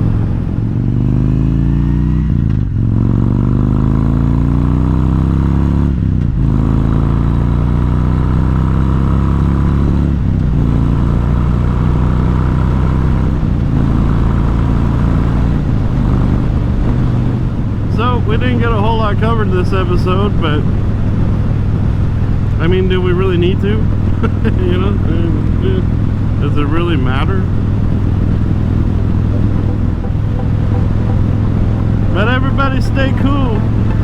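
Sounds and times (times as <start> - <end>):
motorcycle engine shifting gears: 0.0 - 34.0.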